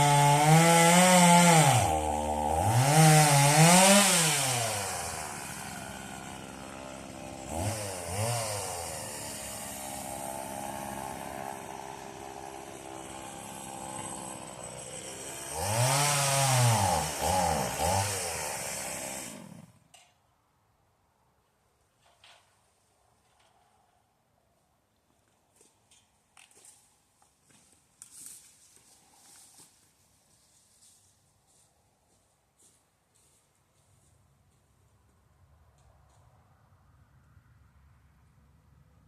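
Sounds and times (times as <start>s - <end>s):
chainsaw engine revving and idling: 0.0s - 19.8s.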